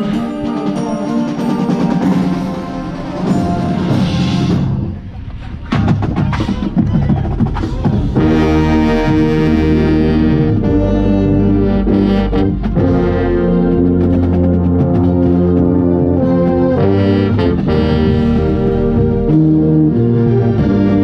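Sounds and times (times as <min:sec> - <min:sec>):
brass chords: 0:00.0 - 0:05.2, 0:07.9 - 0:21.0
sharp percussion hits: 0:00.0 - 0:09.6.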